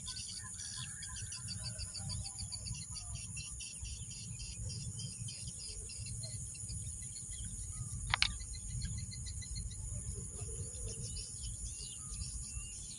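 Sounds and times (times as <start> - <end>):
birds chirping: 0.0 - 12.9
high insect drone: 0.0 - 12.9.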